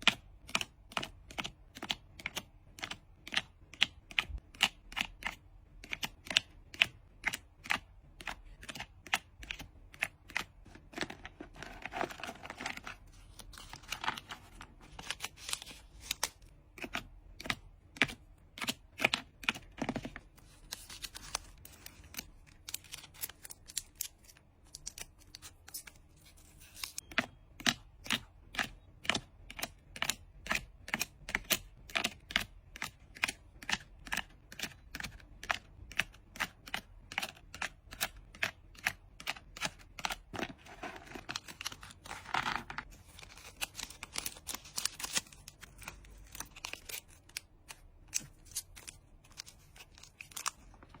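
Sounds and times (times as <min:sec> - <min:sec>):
hands handling trading cards: 0:00.1 - 0:51.0
rustling of packing materials: 0:10.7 - 0:16.4, 0:40.2 - 0:51.0.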